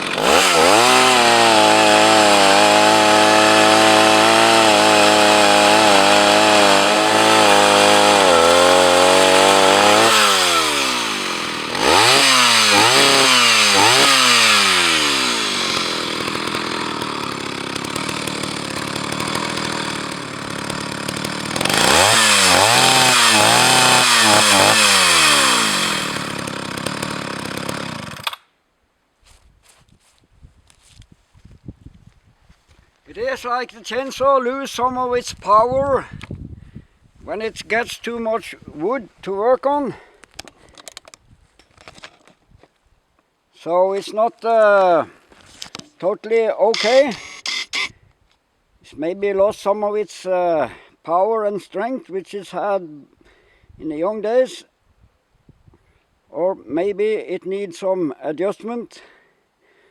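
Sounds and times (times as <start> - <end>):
chainsaw cutting: 0.0 - 28.5, 46.7 - 47.9.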